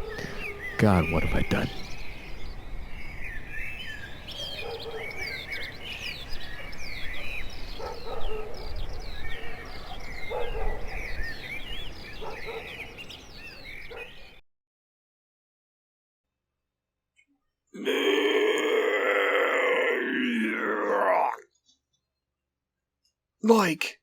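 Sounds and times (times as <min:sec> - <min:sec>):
lower bird calls: 0:00.0 - 0:14.4
small songbirds chirping: 0:00.0 - 0:14.4, 0:18.6 - 0:23.8.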